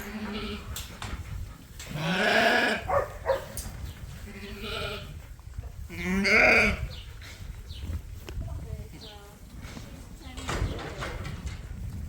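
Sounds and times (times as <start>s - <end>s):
sheep bleating: 6.0s - 6.8s.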